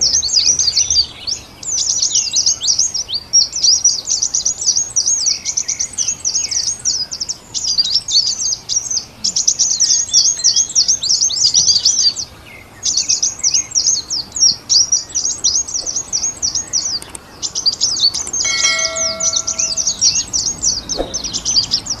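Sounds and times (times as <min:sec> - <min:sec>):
small birds twittering: 0:00.0 - 0:22.0
brief steady tone: 0:18.4 - 0:20.2.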